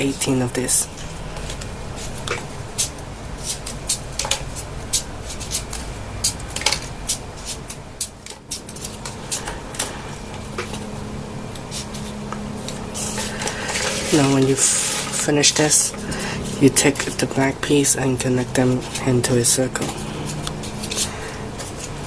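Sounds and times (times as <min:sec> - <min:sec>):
paper clicks and crinkles: 0:01.0 - 0:10.9, 0:19.8 - 0:22.0.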